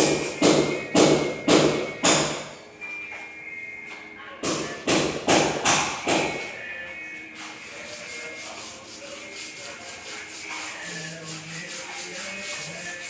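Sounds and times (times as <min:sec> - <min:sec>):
rhythmic scraping strokes: 0:06.1 - 0:13.0.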